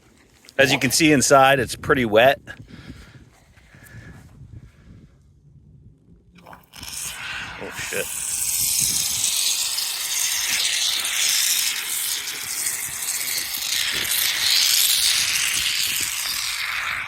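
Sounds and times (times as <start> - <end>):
pressurized spray hissing: 6.5 - 17.0.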